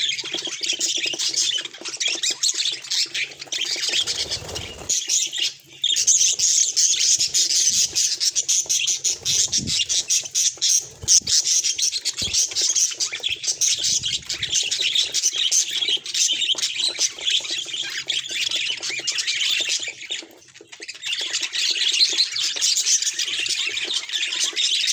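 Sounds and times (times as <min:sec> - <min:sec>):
budgerigar chatter: 0:03.2 - 0:21.9.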